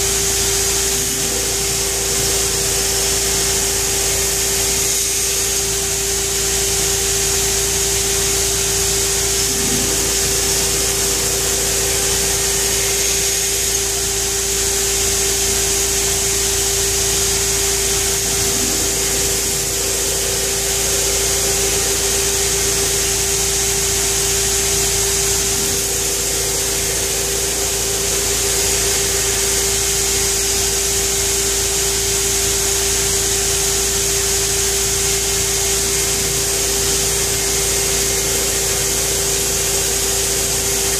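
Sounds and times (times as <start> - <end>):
belt hissing: 0.0 - 30.2
belt grinder humming: 0.0 - 30.3.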